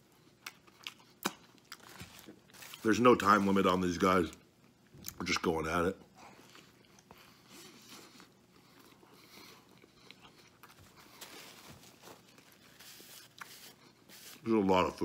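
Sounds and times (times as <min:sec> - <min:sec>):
faint chewing: 0:06.2 - 0:14.2.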